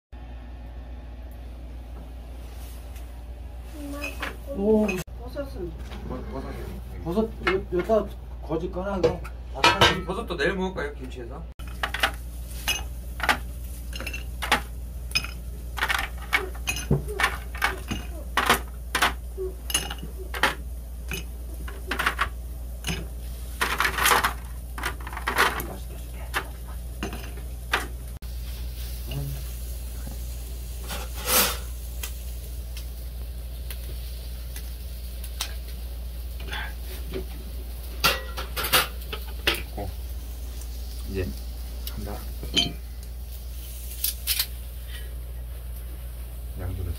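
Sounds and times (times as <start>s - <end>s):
steady low hum: 0.2s - 46.9s
utensils clinking against dishes: 4.0s - 5.0s, 9.2s - 10.2s, 11.6s - 28.0s, 38.0s - 39.8s, 42.4s - 42.8s
kitchenware clatter: 9.0s - 10.3s, 11.6s - 28.0s, 38.0s - 39.8s, 42.4s - 42.8s.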